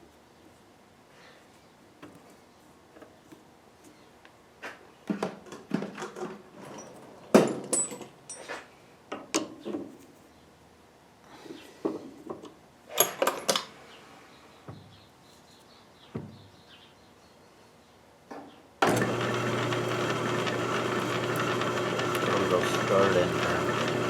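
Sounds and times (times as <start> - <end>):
electric power tool humming: 18.8 - 24.0.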